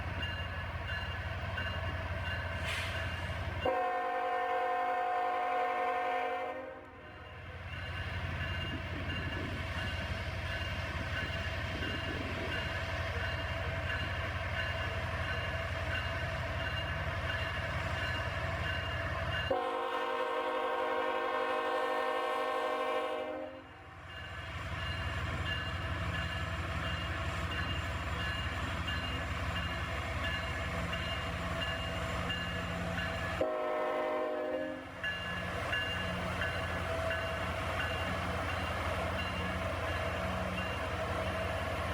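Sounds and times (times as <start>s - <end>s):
crossing bell ringing: 0.0s - 4.2s, 7.0s - 19.9s, 24.0s - 41.9s
freight train diesel rumble: 0.0s - 41.9s
locomotive horn blast: 3.6s - 7.0s, 19.5s - 23.7s, 33.3s - 34.9s.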